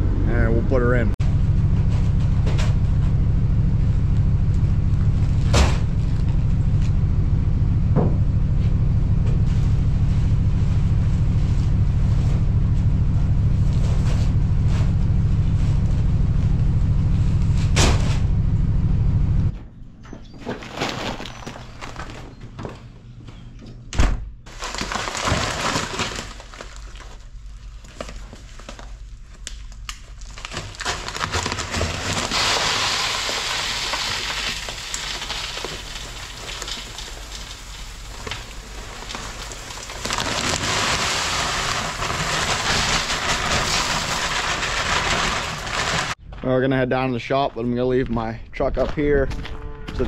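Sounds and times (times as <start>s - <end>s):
heavy thump: 7.9s - 8.4s
salt pellets pouring into tank: 24.5s - 27.2s, 30.2s - 46.2s.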